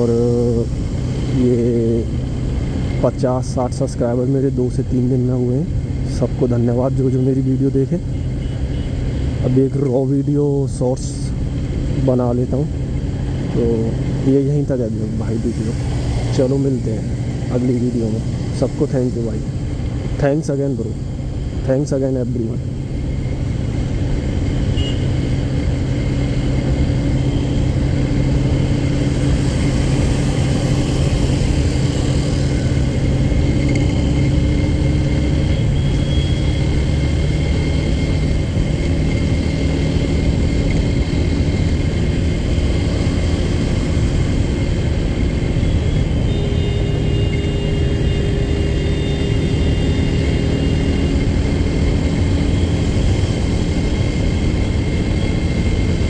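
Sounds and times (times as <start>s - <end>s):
motorcycle engine cruising: 21.0s - 56.0s.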